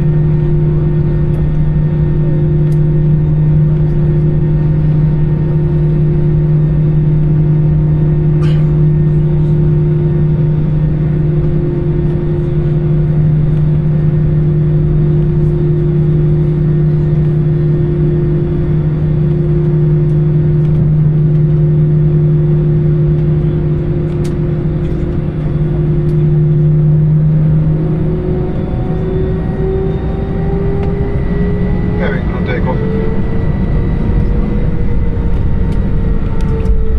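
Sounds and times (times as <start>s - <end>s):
aircraft cabin engine drone: 0.0s - 36.9s
engine whine rising in pitch: 0.0s - 36.9s.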